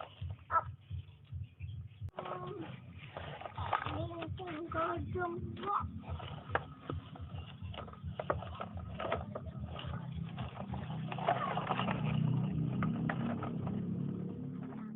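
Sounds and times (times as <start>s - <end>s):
low engine-like hum: 9.0s - 14.9s.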